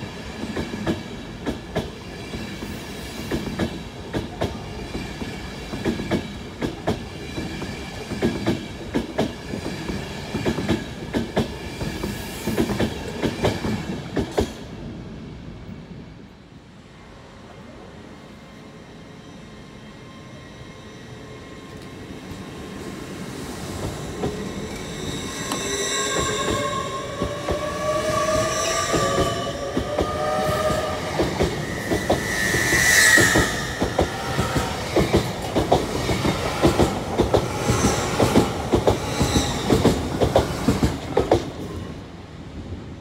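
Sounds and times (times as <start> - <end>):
train whine rising in pitch: 24.1 - 35.0
wheel squeal: 31.6 - 34.5.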